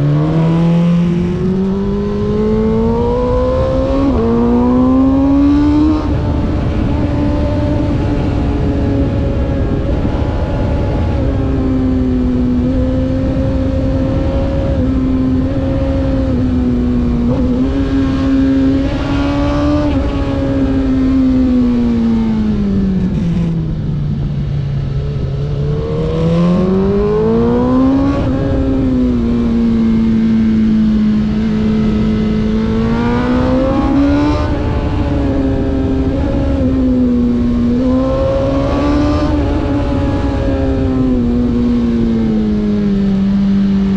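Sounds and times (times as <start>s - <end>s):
road and wind noise: 0.0s - 43.9s
race car engine revving: 25.2s - 42.6s.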